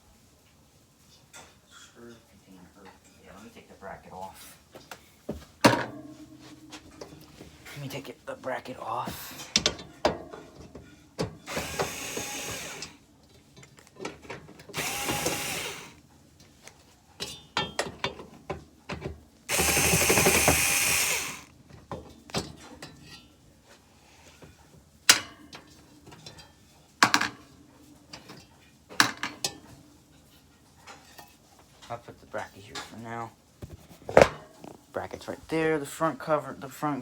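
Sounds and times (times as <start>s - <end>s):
power drill running: 11.5s - 13.0s, 14.7s - 16.0s, 19.5s - 21.5s
hard parts knocking: 14.8s - 15.8s, 19.5s - 21.5s.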